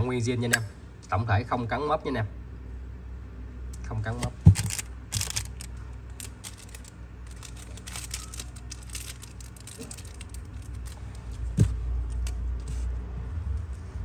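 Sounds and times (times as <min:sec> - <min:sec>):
rustling: 0:04.5 - 0:13.0.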